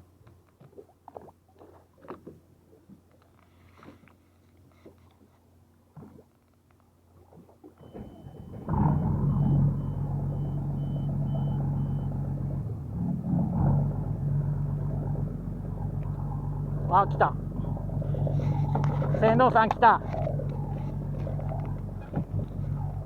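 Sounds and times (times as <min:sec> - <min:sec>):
boat engine running: 0:07.3 - 0:23.0.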